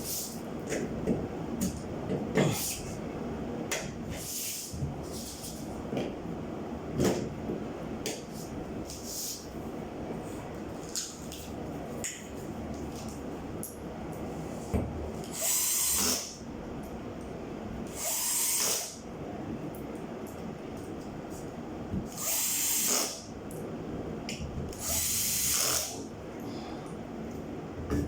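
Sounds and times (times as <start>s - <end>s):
steady low hum: 0.0s - 28.0s
power drill running: 15.4s - 16.3s, 17.9s - 19.0s, 22.1s - 23.2s, 24.8s - 26.0s.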